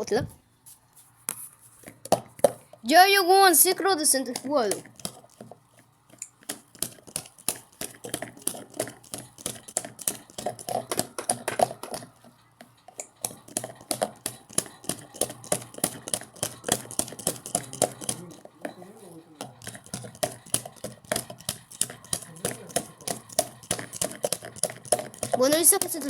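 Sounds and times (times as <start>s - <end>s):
washing machine clicking rattle: 19.4s - 26.0s.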